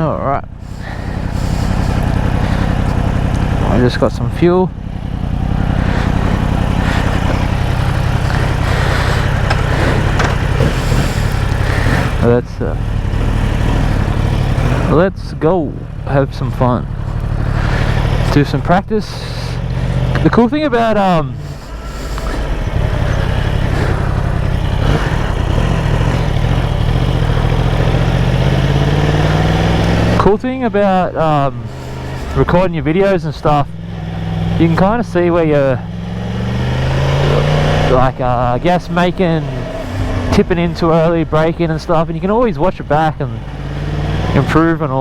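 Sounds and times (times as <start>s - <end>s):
motorcycle engine idling: 0.0s - 45.0s.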